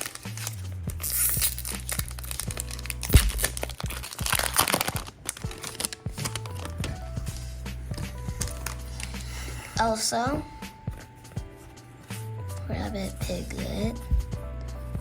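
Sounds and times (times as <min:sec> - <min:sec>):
foil wrapper crinkling and tearing: 0:00.0 - 0:07.0, 0:08.0 - 0:09.3
background music with steady beat: 0:00.0 - 0:15.0.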